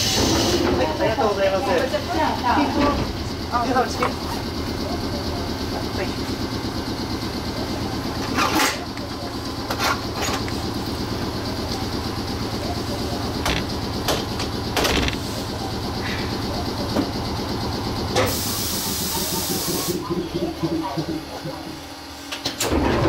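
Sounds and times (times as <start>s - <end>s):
railcar equipment humming: 0.0s - 22.4s
sharp clicks and knocks: 13.4s - 15.2s.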